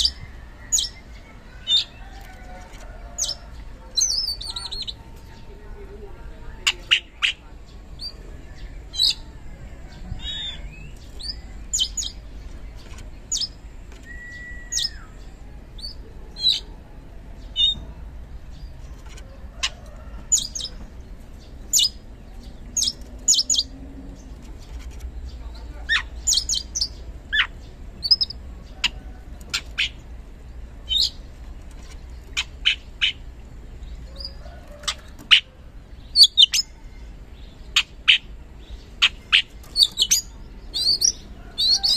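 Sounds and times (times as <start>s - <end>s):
magpie-robin singing: 0.0s - 2.5s, 3.2s - 5.6s, 6.4s - 16.8s, 17.4s - 18.8s, 19.6s - 31.3s, 31.9s - 41.9s
bird whistle: 14.0s - 15.2s.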